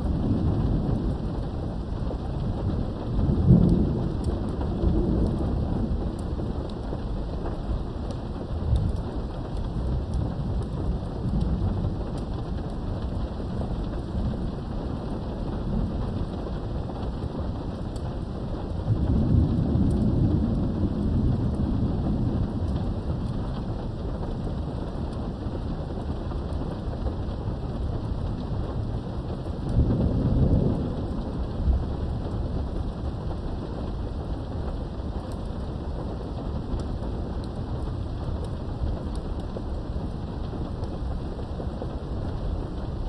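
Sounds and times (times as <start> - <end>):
rolls of thunder: 0.0 - 6.6, 18.8 - 23.7, 29.5 - 34.2
steady rain: 0.0 - 43.0.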